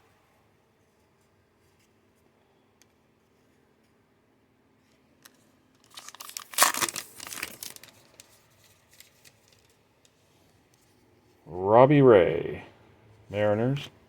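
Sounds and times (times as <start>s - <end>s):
wrapper tearing and crinkling: 5.2s - 9.8s.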